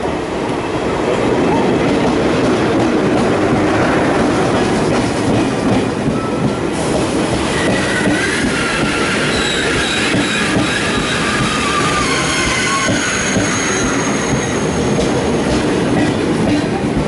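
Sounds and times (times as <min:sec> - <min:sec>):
train wheels rumbling and rattling: 0:00.0 - 0:17.0.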